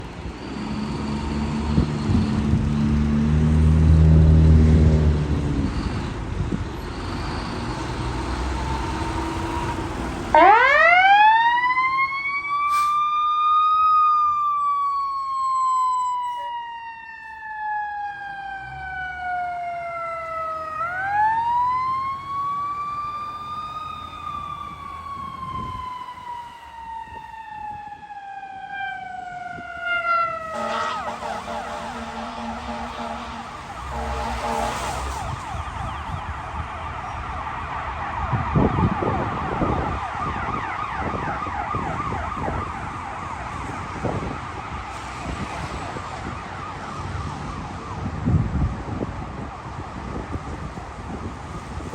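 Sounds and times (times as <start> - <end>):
diesel engine rumbling: 0.0 - 16.5, 17.3 - 38.7
siren wailing: 6.8 - 48.4.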